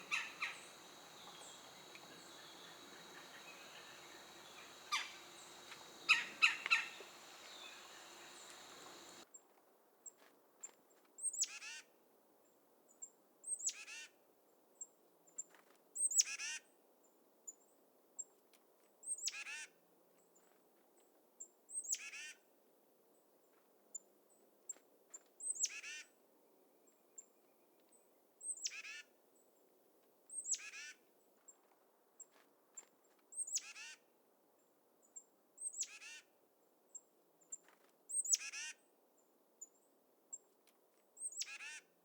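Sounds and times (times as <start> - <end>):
faint high pips: 0.0 - 9.2
songbird scolding call: 0.0 - 9.2.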